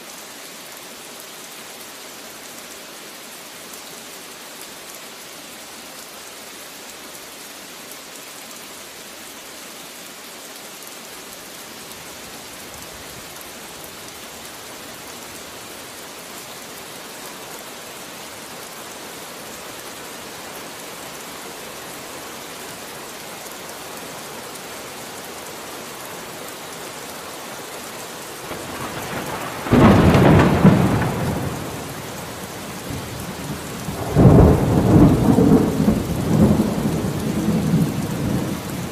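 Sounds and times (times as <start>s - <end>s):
steady rain falling: 0.0s - 38.9s
thunder clap rumbling: 28.5s - 33.3s, 33.9s - 38.5s.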